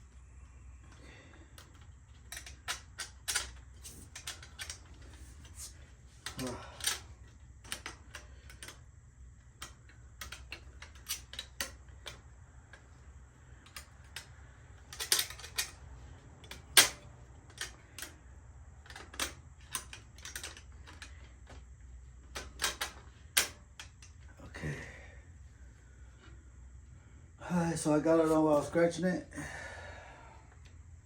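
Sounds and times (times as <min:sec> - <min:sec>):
steady low hum: 0:00.0 - 0:31.0
metal parts clicking and tapping: 0:00.8 - 0:13.0, 0:13.6 - 0:15.8, 0:16.4 - 0:18.2, 0:18.8 - 0:24.3.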